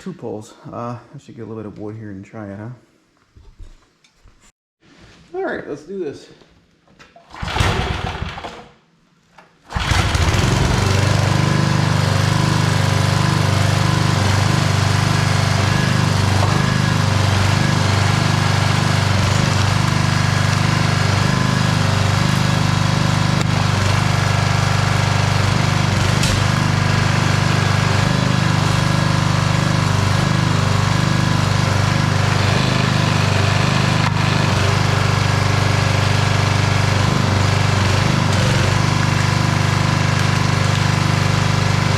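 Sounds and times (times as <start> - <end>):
single-cylinder engine running: 9.7 - 41.9.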